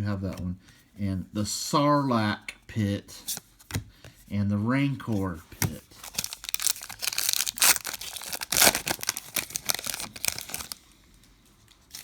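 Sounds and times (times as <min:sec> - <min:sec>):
wrapper tearing and crinkling: 0:06.0 - 0:10.8.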